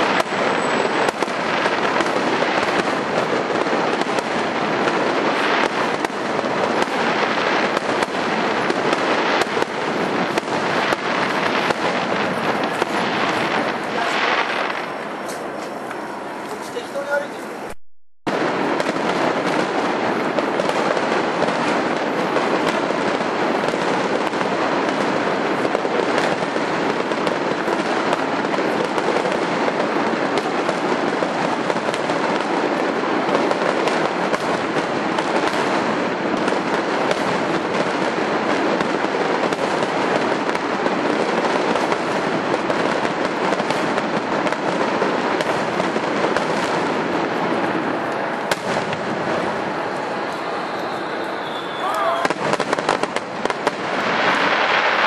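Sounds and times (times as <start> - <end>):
fireworks bursting and crackling: 0.0 - 55.0.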